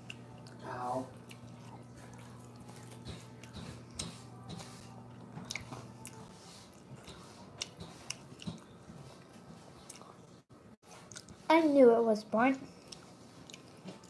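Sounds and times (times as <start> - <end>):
faint close chewing: 0.0 - 11.5, 12.6 - 14.0.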